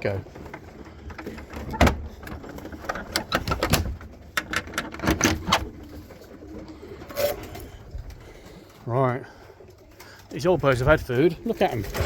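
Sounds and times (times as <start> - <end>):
sharp clicks and clattering knocks: 0.0 - 6.2.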